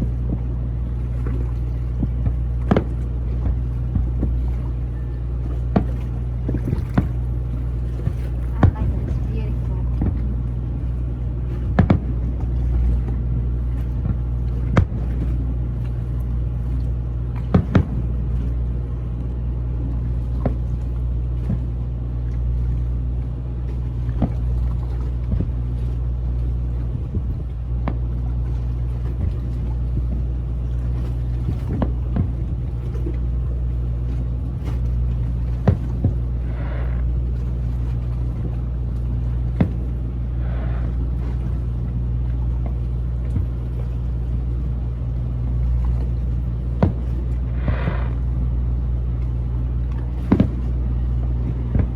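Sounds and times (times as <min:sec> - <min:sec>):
low drone of boat machinery: 0:00.0 - 0:51.9
sharp thumps: 0:46.8 - 0:48.5.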